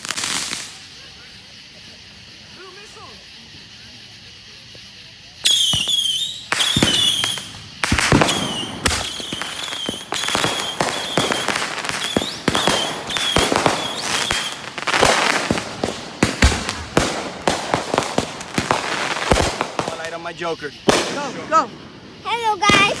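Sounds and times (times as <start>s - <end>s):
fireworks bangs and crackling: 0.0s - 23.0s
high warbling firework whistle: 5.4s - 20.1s.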